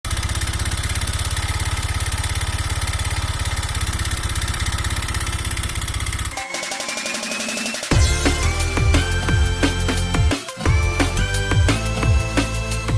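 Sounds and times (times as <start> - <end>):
scooter engine idling rough: 0.0 - 6.4.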